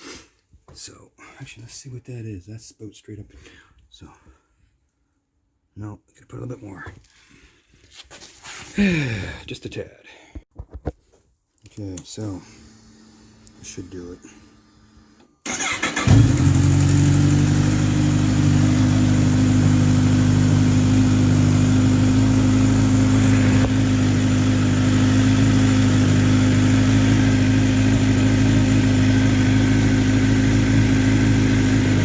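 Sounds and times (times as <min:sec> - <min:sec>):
motorcycle engine idling: 0:15.0 - 0:32.0.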